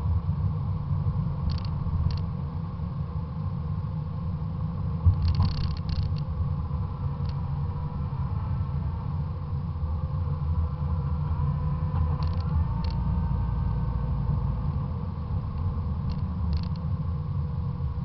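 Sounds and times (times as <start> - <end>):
car engine rumbling: 0.0 - 18.0
faint clicks: 15.6 - 16.8.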